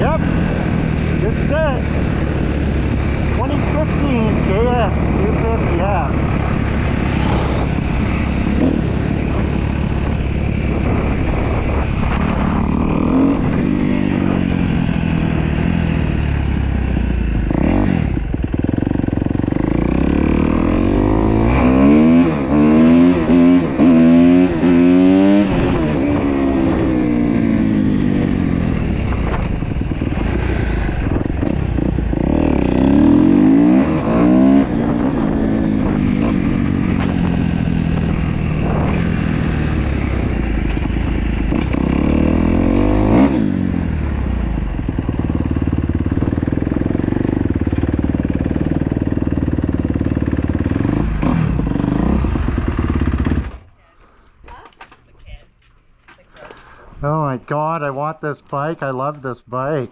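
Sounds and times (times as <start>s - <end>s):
motorcycle engine revving: 0.0s - 53.8s.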